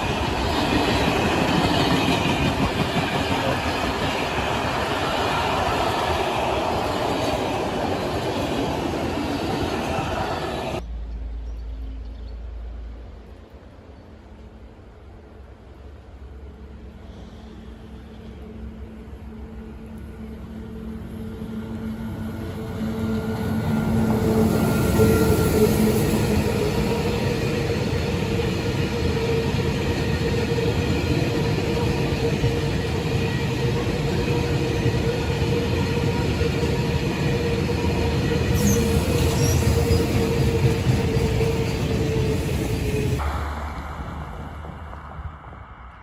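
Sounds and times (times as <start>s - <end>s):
train passing: 0.0s - 46.0s
high squeal: 38.4s - 41.9s.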